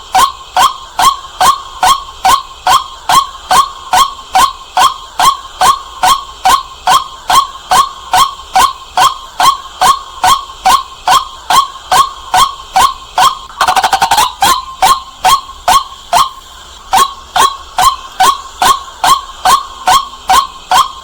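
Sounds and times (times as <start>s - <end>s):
bird calling sharp notes: 13.5s - 16.4s.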